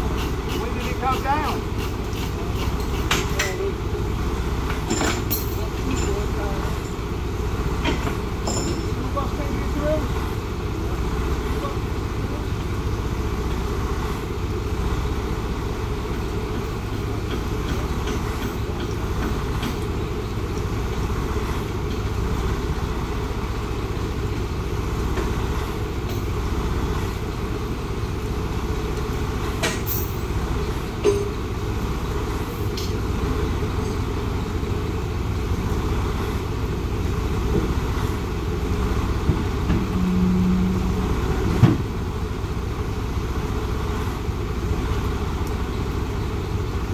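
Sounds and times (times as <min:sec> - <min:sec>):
vehicle engine idling: 0:00.0 - 0:46.9
short low hum: 0:39.6 - 0:42.4.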